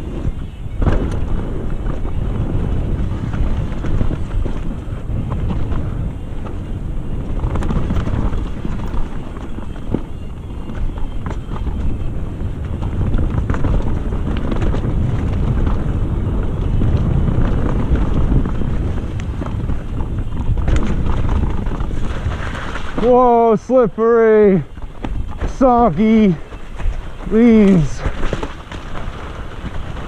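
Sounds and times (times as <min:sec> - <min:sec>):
bike clicks and rattles: 0:00.0 - 0:24.0, 0:24.6 - 0:30.0
wind rushing over microphone: 0:00.0 - 0:30.0
tyres on wet mud and leaves: 0:20.7 - 0:30.0.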